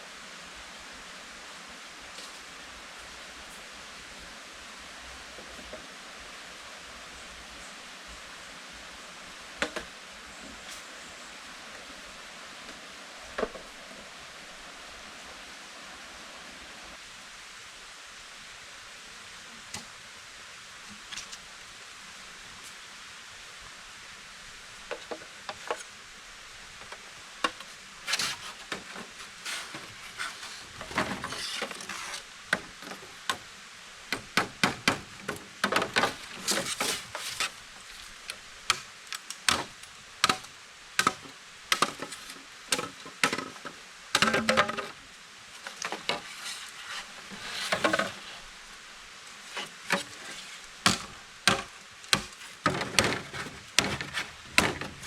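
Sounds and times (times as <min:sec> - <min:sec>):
steady background hiss: 0:00.0 - 0:55.0
sharp wooden knocks and clacks: 0:34.1 - 0:37.5, 0:39.5 - 0:45.0, 0:50.9 - 0:55.0.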